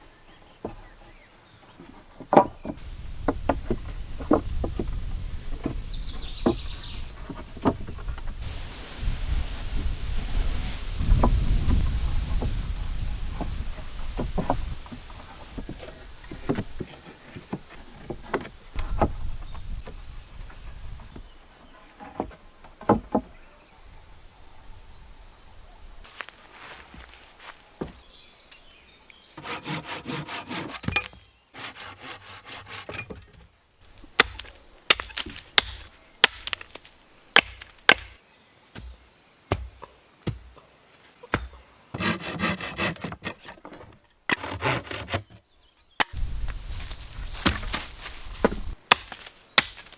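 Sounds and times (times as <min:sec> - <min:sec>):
wood knocking and clattering: 0:01.7 - 0:08.4, 0:13.2 - 0:20.0, 0:22.0 - 0:23.4
hand saw cutting wood: 0:29.3 - 0:33.2, 0:41.9 - 0:45.4.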